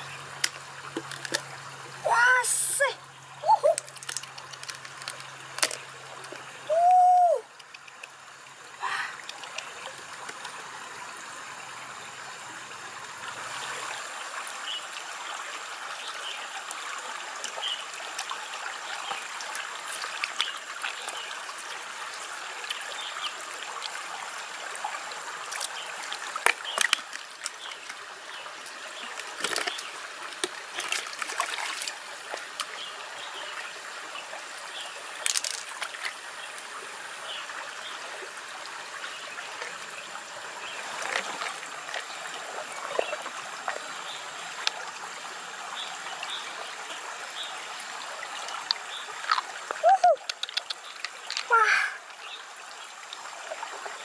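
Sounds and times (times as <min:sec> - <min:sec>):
water trickling and splashing: 0:00.0 - 0:54.0
small clicks: 0:48.6 - 0:51.5.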